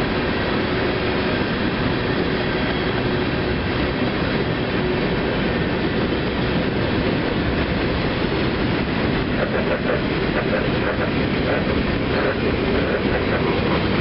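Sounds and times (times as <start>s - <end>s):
steel wheels on rails: 0.0s - 14.0s.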